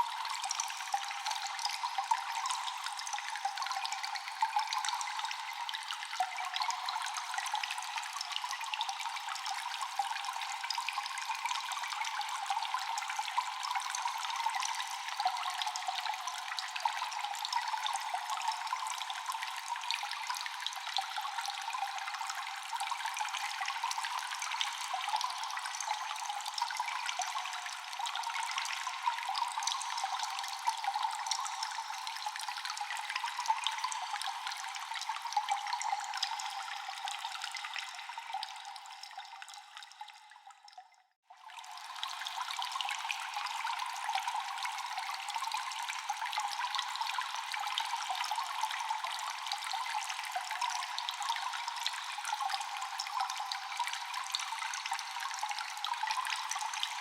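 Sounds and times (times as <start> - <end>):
water dripping in a cave: 0.0 - 57.0.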